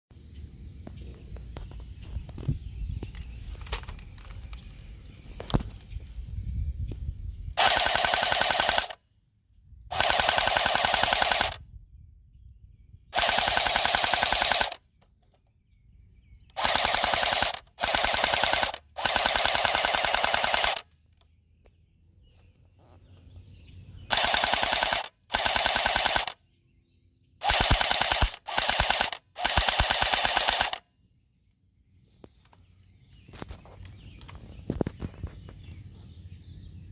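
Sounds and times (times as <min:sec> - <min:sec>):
airsoft gun firing bursts: 0:07.6 - 0:09.0, 0:09.9 - 0:11.6, 0:13.2 - 0:14.8, 0:16.6 - 0:20.9, 0:24.1 - 0:26.4, 0:27.4 - 0:30.8.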